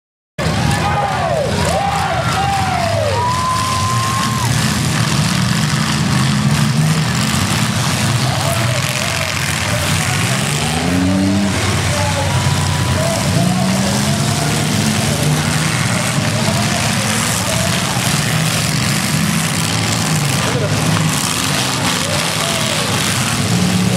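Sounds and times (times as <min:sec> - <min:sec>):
people shouting: 0:00.4 - 0:05.0, 0:08.2 - 0:18.7, 0:21.5 - 0:23.4
car engines revving: 0:00.4 - 0:23.9.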